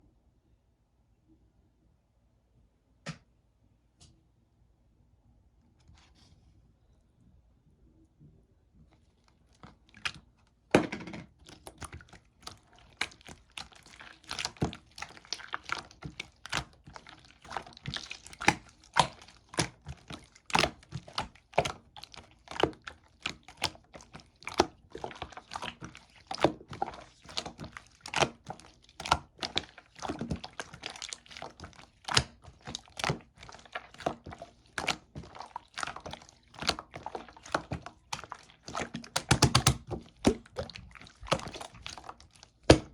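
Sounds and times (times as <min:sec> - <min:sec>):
slime squished by hand: 0:11.2 - 0:42.9.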